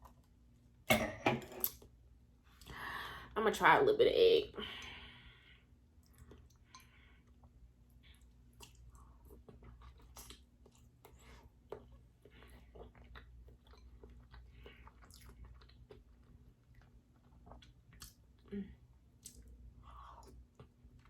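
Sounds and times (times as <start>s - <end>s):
person chewing: 6.0s - 21.0s.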